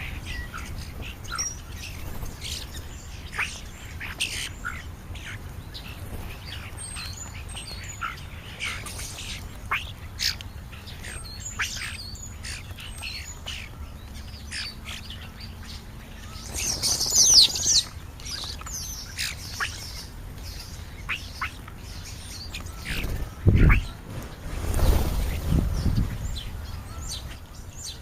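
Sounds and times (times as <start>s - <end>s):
birds chirping and whistling: 0.0s - 28.0s.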